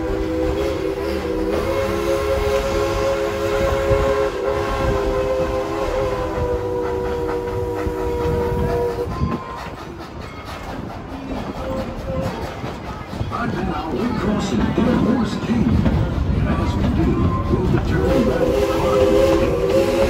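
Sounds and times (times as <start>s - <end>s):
steam locomotive whistle: 0.0s - 9.8s, 17.9s - 20.0s
train rumbling: 0.0s - 20.0s.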